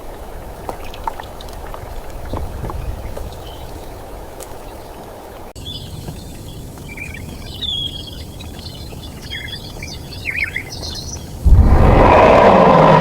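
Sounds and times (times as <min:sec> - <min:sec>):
birds chirping: 0:00.0 - 0:13.0
steady low background: 0:11.2 - 0:12.6
low rumbling noise: 0:11.3 - 0:13.0.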